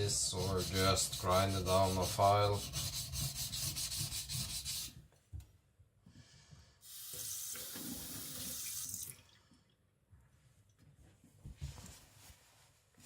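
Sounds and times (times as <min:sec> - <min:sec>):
water running from tap: 0:06.8 - 0:09.3.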